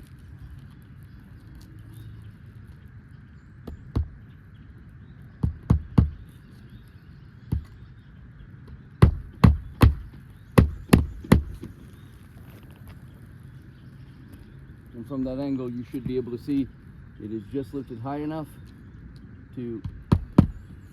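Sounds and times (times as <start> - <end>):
hammer striking roofing nails: 5.4 - 6.2, 9.0 - 11.6, 19.8 - 20.7.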